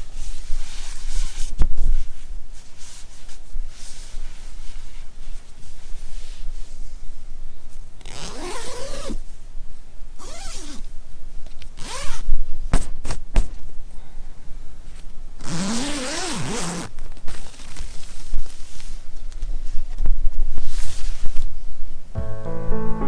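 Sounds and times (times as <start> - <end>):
zipper rasping: 8.0 - 9.2, 10.2 - 10.8, 11.8 - 12.2, 15.4 - 17.9.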